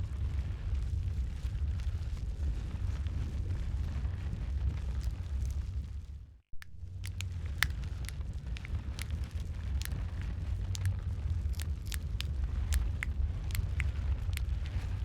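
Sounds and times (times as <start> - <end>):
wood fire crackling: 0.2 - 15.0.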